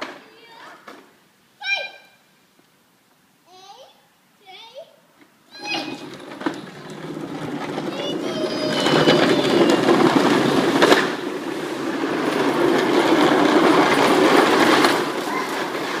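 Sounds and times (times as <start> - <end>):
plastic toy wheels rolling on pavement: 5.5 - 16.0.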